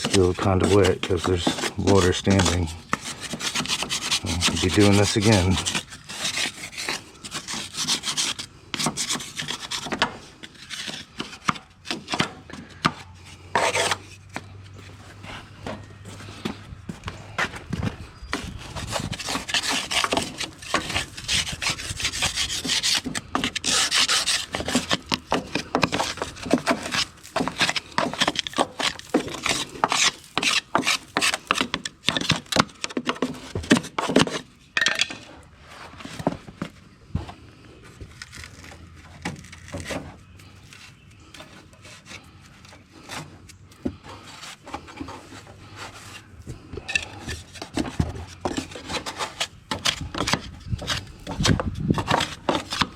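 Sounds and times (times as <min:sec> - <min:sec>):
wood scraping grass off mower deck: 0:00.0 - 0:52.9.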